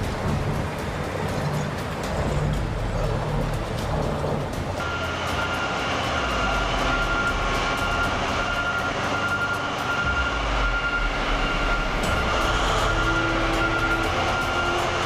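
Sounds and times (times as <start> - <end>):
heavy vehicle rumble: 0.0 - 15.0
thin high tone: 4.8 - 15.0.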